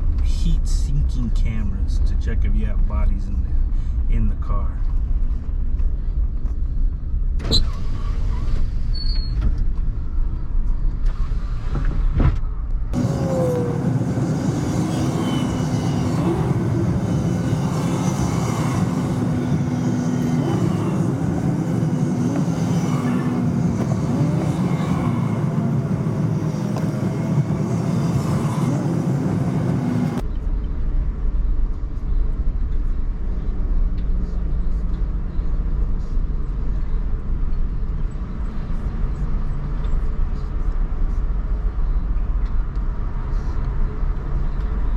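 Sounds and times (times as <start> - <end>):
busy traffic-like noise: 0.0 - 44.9
vehicle engine and road rumble: 0.0 - 44.9
gliding tones: 13.0 - 30.2.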